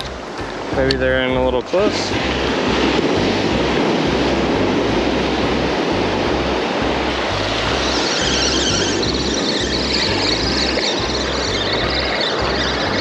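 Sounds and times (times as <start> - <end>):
background music with bass line: 0.0 - 13.0
ocean surf on rocks: 0.0 - 13.0.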